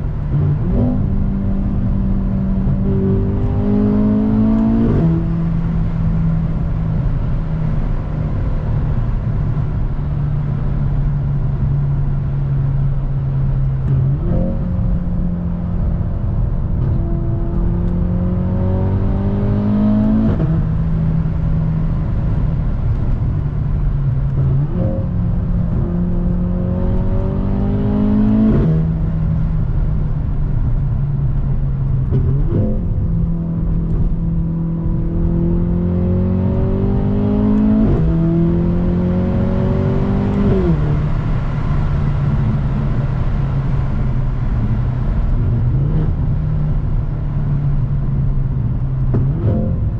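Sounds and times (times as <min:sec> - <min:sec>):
car engine accelerating hard: 0:00.0 - 0:49.9.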